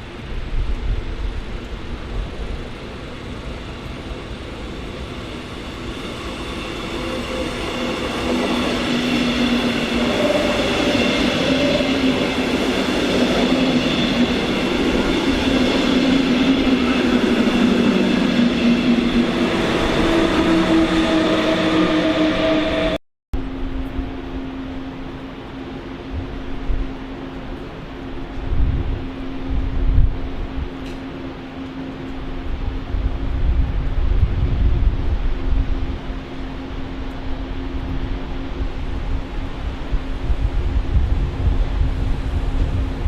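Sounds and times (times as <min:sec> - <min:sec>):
electric train rolling: 0:00.0 - 0:43.0
train drive and brake whine: 0:02.0 - 0:23.0.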